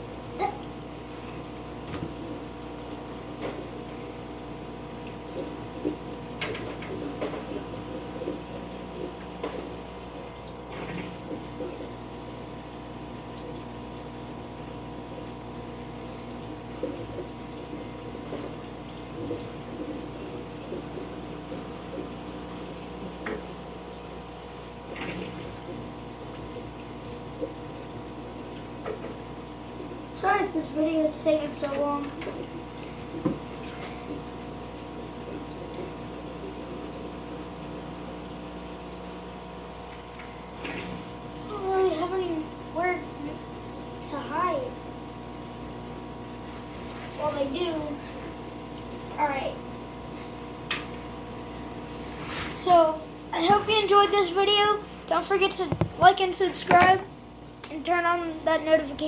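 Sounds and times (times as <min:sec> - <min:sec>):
aquarium water moving: 0:00.0 - 0:59.0
pump hum: 0:00.0 - 0:59.0
small splashes and knocks of fish net: 0:32.2 - 0:34.2, 0:39.9 - 0:41.1.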